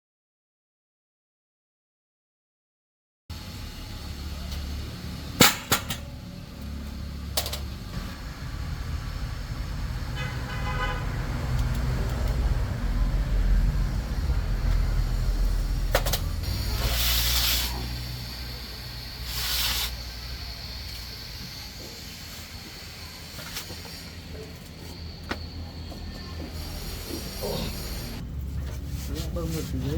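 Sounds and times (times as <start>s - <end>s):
traffic rumbling: 3.3s - 29.9s
short bursts of hiss: 16.4s - 18.0s, 19.2s - 21.4s.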